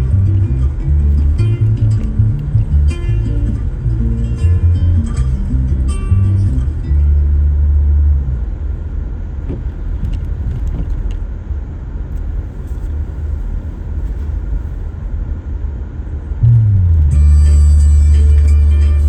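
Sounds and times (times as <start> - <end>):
music with heavy bass: 0.0 - 8.4, 16.4 - 19.0
car driving rumble: 0.0 - 19.0.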